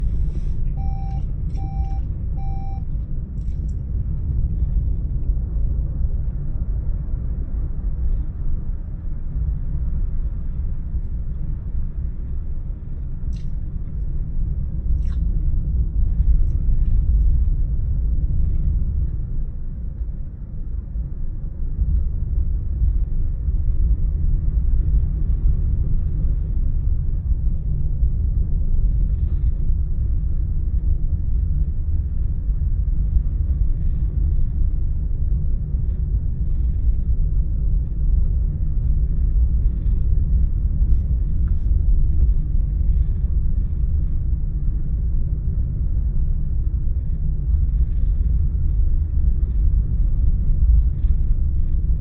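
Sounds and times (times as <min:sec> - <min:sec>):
short electronic beeps: 0:00.0 - 0:02.9
car road and engine noise: 0:00.0 - 0:08.1.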